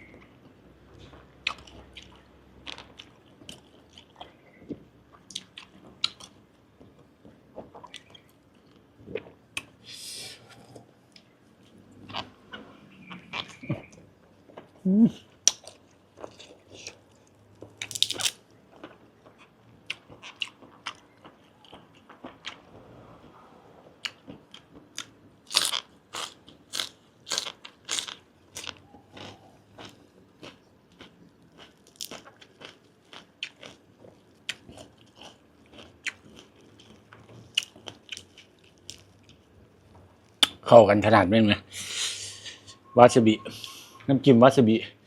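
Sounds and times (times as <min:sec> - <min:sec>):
chewing wet smacks and crunches: 0:01.0 - 0:06.4, 0:07.2 - 0:09.8, 0:15.4 - 0:22.8, 0:24.0 - 0:39.4.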